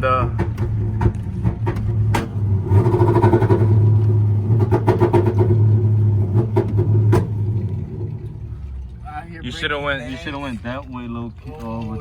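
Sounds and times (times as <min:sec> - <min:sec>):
sharp knocks: 0:00.3 - 0:03.8, 0:04.5 - 0:05.6, 0:06.3 - 0:07.4
truck engine pulling away: 0:00.7 - 0:09.0.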